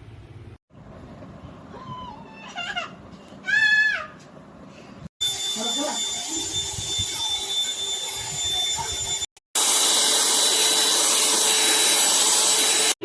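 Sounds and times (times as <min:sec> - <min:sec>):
handheld vacuum cleaner whining: 0:05.2 - 0:13.0.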